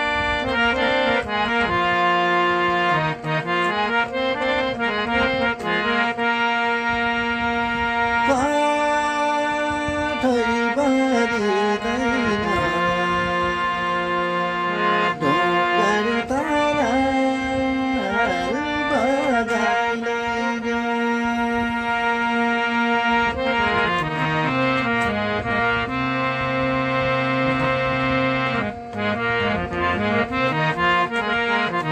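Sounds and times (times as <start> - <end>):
instrumental folk music: 0.0 - 31.9.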